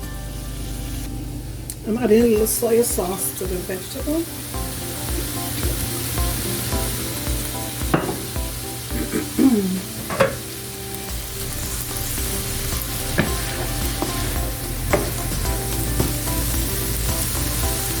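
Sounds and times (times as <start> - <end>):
vegetables sizzling in a pot: 0.0 - 18.0
utensil scraping a pot: 12.0 - 16.0.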